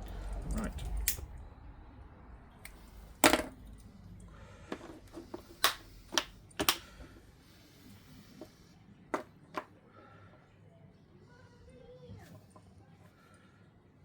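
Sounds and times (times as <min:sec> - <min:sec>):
tools clicking and knocking: 0:04.7 - 0:07.2.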